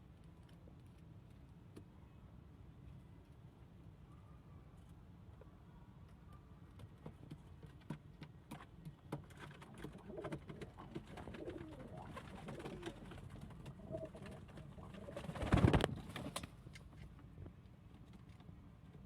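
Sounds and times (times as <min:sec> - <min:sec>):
pigeons cooing: 0:09.9 - 0:16.1.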